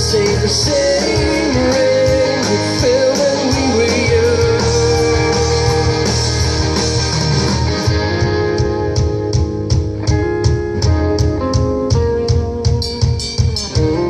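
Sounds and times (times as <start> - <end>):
rock band playing live: 0.0 - 14.0.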